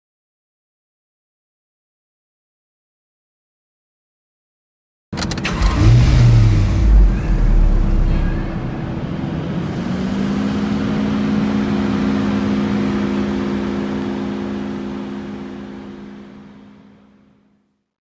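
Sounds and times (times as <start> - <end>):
car engine idling: 5.2 - 17.3.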